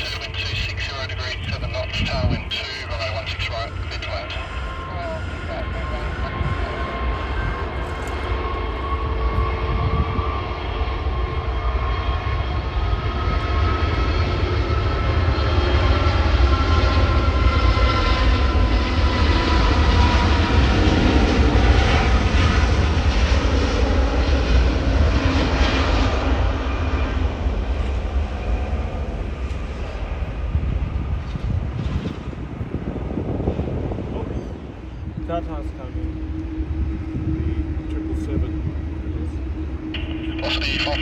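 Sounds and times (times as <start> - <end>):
deep jet rumble: 0.0 - 41.0
jet airliner engines whining: 0.0 - 41.0.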